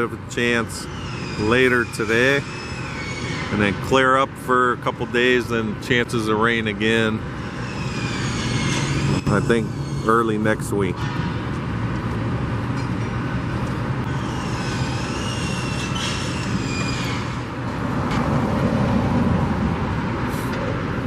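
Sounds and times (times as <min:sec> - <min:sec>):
traffic and engine rumble: 0:00.0 - 0:21.0
vehicle passing: 0:13.9 - 0:21.0.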